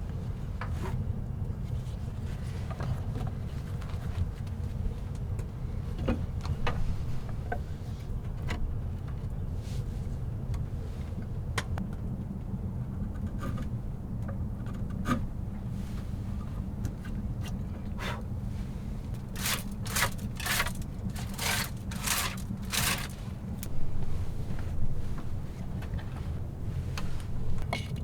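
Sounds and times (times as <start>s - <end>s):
small clicks and knocks: 19.2s - 23.7s.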